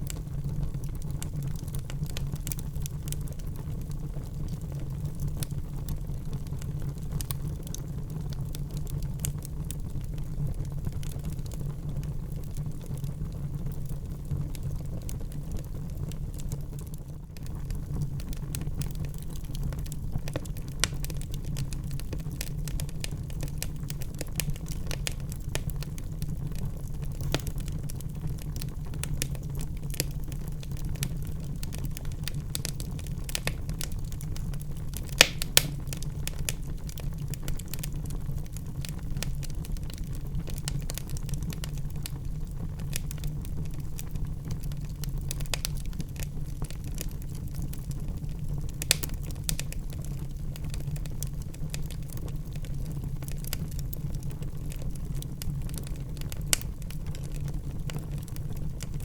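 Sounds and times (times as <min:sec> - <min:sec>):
fire popping: 0:00.0 - 0:59.0
wood fire crackling: 0:00.0 - 0:59.0.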